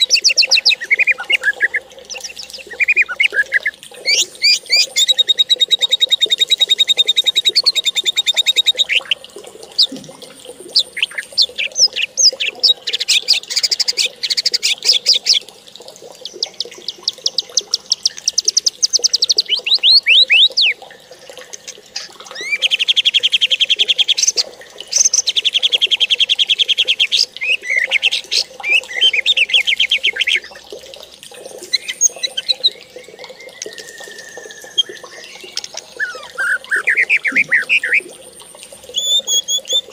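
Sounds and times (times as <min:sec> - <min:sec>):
songbird singing trills: 0:00.0 - 0:10.0, 0:10.7 - 0:15.4, 0:16.2 - 0:20.8, 0:21.6 - 0:30.6, 0:31.5 - 0:38.1, 0:38.9 - 0:39.9.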